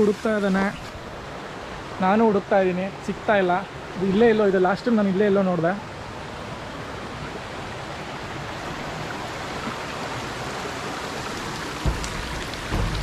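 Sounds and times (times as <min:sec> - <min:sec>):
stream rushing over rocks: 0:00.0 - 0:13.0
low thump: 0:11.8 - 0:13.0.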